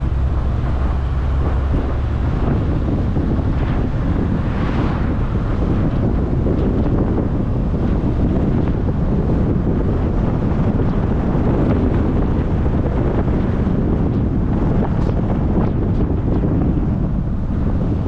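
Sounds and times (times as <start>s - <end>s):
road noise: 0.0s - 14.0s
wind rumbling on microphone: 0.0s - 18.0s.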